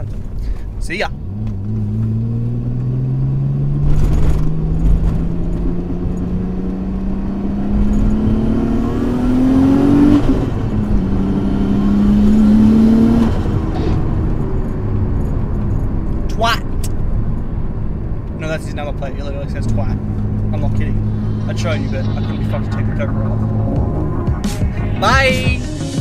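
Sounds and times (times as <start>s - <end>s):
car engine pulling through gears: 0.0s - 24.2s.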